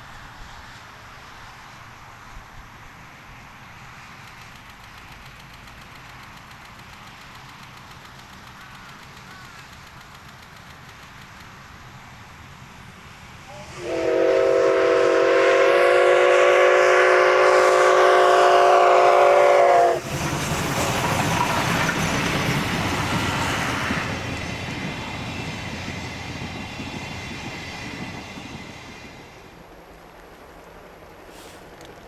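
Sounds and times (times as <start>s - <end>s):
train rumbling past: 0.0s - 32.0s
locomotive whistle blast: 13.5s - 20.1s.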